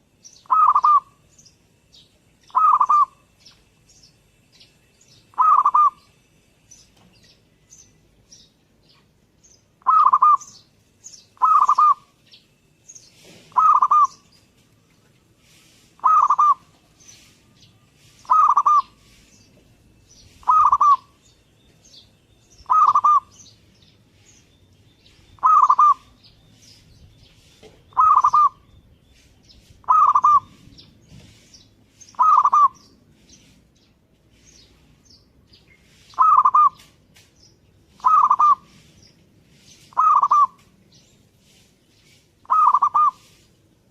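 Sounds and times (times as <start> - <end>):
small birds chirping: 0.0 - 43.9
dove cooing: 0.4 - 1.2, 2.5 - 3.2, 5.3 - 6.0, 9.8 - 10.5, 11.4 - 12.1, 13.5 - 14.2, 16.0 - 16.8, 18.2 - 19.2, 20.4 - 21.2, 22.6 - 23.3, 25.4 - 26.1, 27.9 - 28.6, 29.8 - 30.7, 32.2 - 32.8, 36.1 - 36.9, 38.0 - 38.9, 39.9 - 40.6, 42.4 - 43.4.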